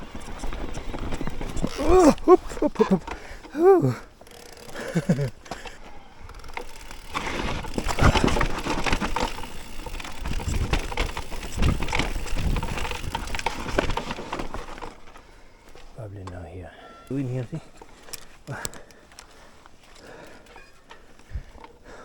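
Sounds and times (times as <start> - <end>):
bike clattering over roots: 0.0 - 17.0.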